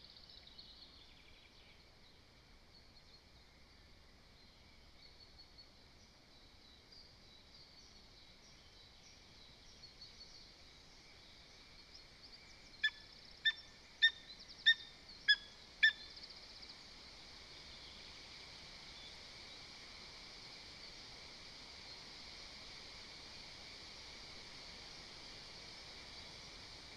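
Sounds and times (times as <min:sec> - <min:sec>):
faint songbirds twittering: 0:00.0 - 0:19.8
steady outdoor hiss: 0:00.0 - 0:26.9.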